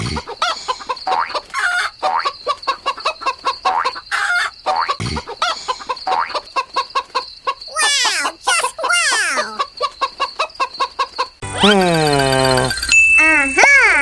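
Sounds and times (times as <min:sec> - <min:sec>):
chickens clucking: 0:00.0 - 0:11.4.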